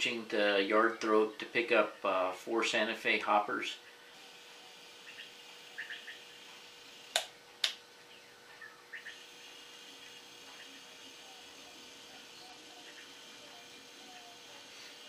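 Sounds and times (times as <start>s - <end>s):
faint steady hum: 0.0s - 15.0s
sharp clicks: 7.1s - 7.8s.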